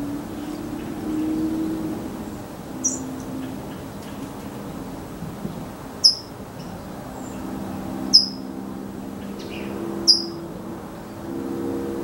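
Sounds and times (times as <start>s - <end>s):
bird chip calls: 2.8s - 4.2s, 6.0s - 7.4s, 8.1s - 8.4s, 9.2s - 10.4s.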